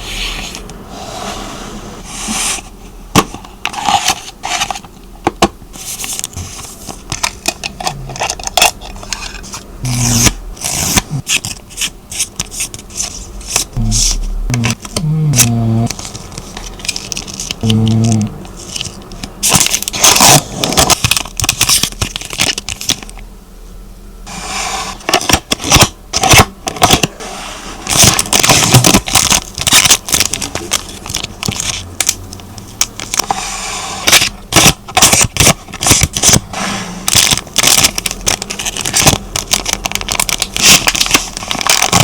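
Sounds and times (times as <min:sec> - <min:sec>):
hands crinkling packaging: 0:07.0 - 0:23.2, 0:27.8 - 0:33.4, 0:34.0 - 0:36.4, 0:37.0 - 0:42.0.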